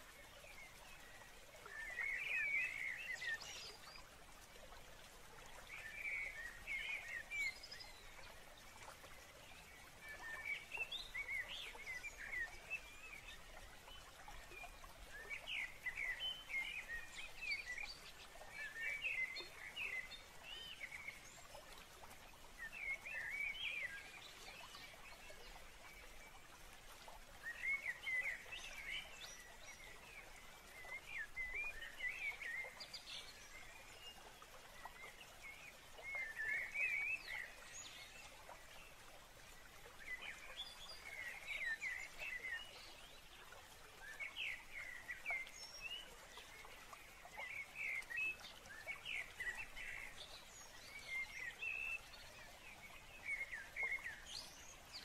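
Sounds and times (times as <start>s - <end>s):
songbird singing: 5.5s - 26.4s, 44.0s - 55.0s.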